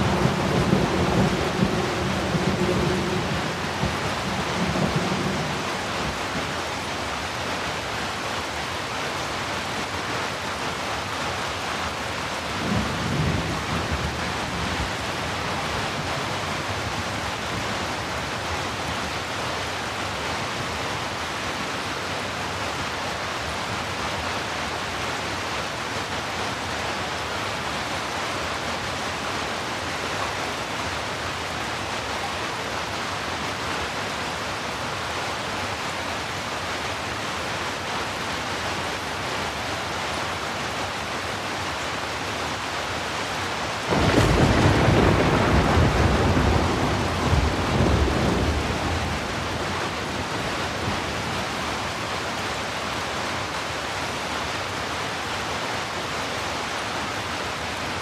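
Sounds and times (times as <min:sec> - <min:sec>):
thunder rumbling: 0:00.0 - 0:06.2, 0:43.9 - 0:51.9
heavy rain hissing: 0:00.0 - 0:58.0.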